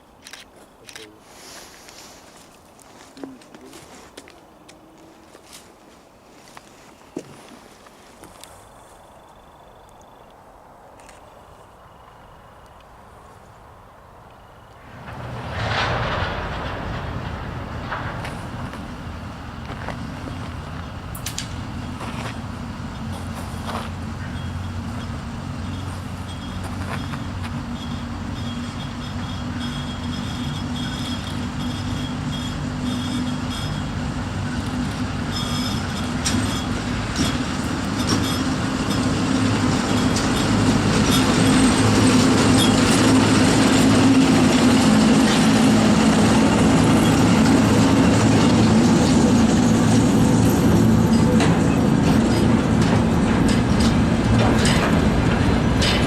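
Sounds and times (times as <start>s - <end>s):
diesel locomotive engine drone: 0.0s - 56.0s
train wheels clicking over rails: 14.7s - 56.0s.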